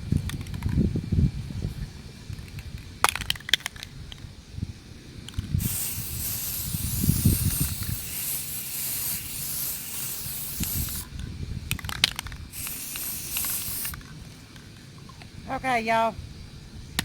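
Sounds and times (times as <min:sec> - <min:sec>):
spray paint can hissing: 0:05.6 - 0:11.1, 0:12.5 - 0:14.0.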